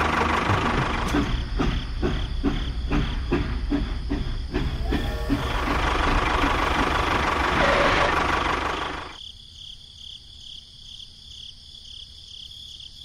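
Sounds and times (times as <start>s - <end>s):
faint insect chirping: 8.7s - 13.0s.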